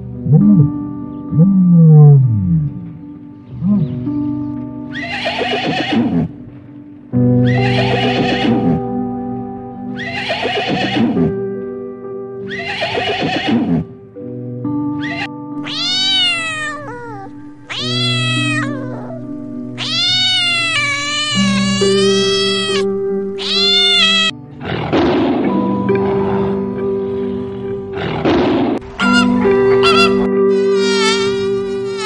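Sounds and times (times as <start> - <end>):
background music: 0.0 - 32.0
horse whinnying: 4.9 - 6.4, 7.4 - 8.8, 10.0 - 11.4, 12.5 - 13.9, 15.0 - 24.3
cat meowing: 7.4 - 8.8, 15.0 - 24.4.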